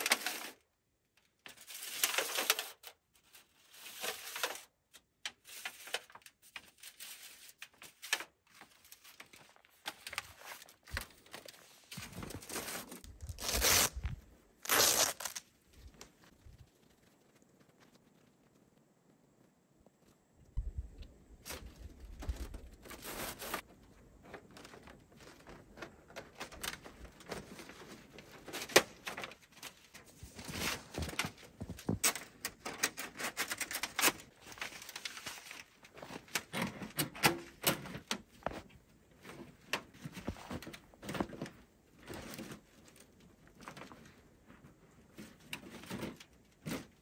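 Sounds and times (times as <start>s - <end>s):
rustling: 5.4s - 20.2s, 21.4s - 37.0s.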